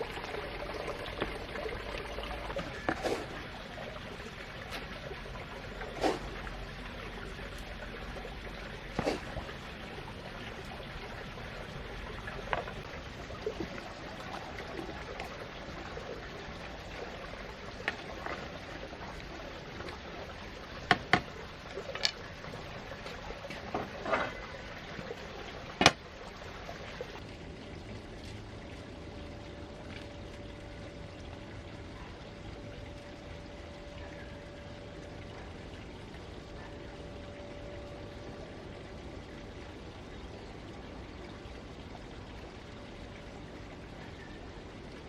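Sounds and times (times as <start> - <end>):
faint steady hum: 0.0 - 45.0
water trickling: 0.0 - 45.0
sharp clicks and knocks: 25.8 - 26.0.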